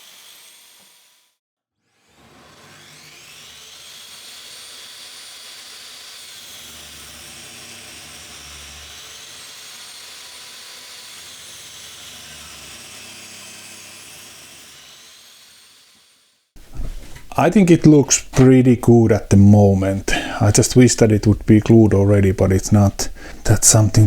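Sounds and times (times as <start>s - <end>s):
table saw whine cutting wood: 0.0s - 1.3s, 1.9s - 18.2s.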